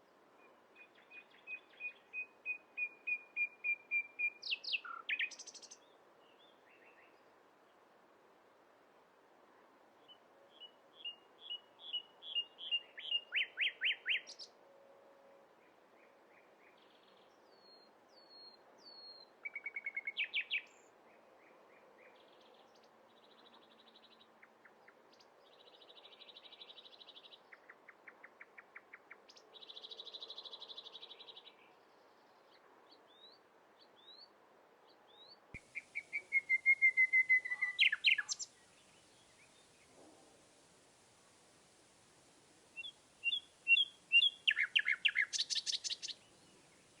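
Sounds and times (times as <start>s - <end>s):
faint steady hiss: 0.0s - 47.0s
bird whistles: 35.6s - 38.5s, 42.8s - 46.2s
birds chirping: 35.6s - 40.0s, 42.8s - 47.0s
bird trill: 35.8s - 38.5s, 42.8s - 46.2s.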